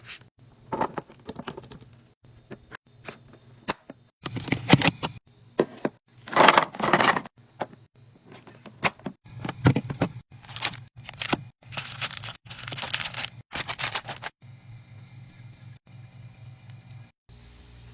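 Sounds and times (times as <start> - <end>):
items clicking and knocking: 0.7 - 2.8, 3.7 - 14.4
plastic packaging crinkling: 10.4 - 14.3.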